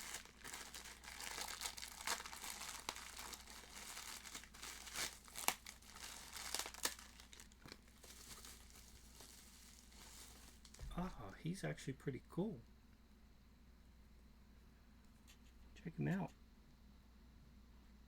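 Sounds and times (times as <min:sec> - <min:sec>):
plastic wrapping crinkling and tearing: 0:00.0 - 0:11.2.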